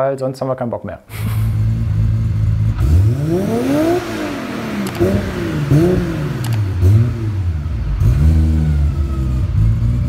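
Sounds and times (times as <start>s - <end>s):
car engine revving: 1.1s - 10.0s
sharp click: 4.8s - 5.1s, 6.4s - 6.7s.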